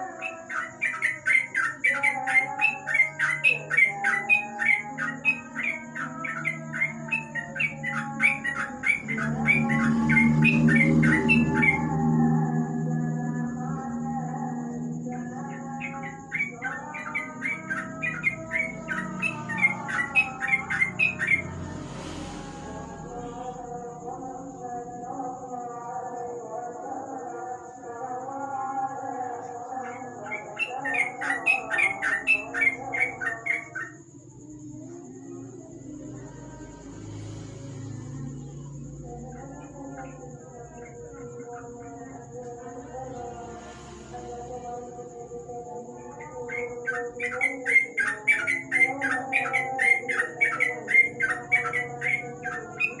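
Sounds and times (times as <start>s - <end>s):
bird chirping: 0.0s - 12.2s, 15.0s - 23.7s, 29.7s - 34.4s, 45.2s - 53.0s
bird singing whistled notes: 15.6s - 21.6s.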